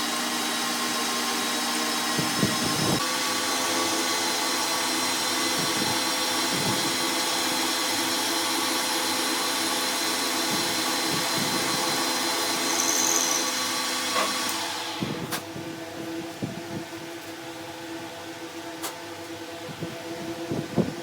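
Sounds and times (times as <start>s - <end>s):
machine motor whining: 0.0s - 15.4s.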